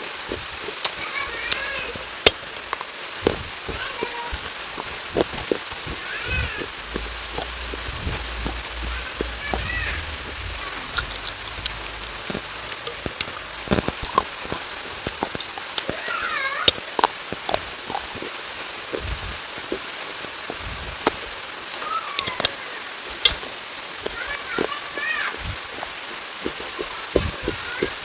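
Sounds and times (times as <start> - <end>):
rain falling: 0.0 - 28.0
raindrops tapping: 0.0 - 28.0.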